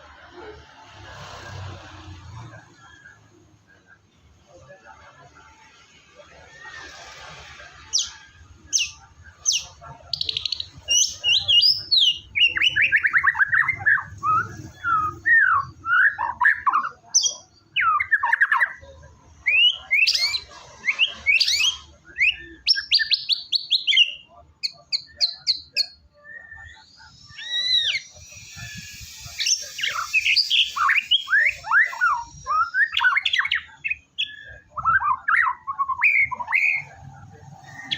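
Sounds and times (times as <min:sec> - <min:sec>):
bird whistles and trills: 0:07.9 - 0:18.8, 0:19.4 - 0:36.9.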